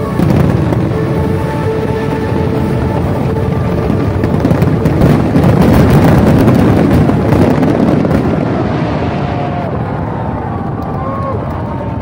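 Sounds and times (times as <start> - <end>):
fireworks crackling and popping: 0.0 - 9.9.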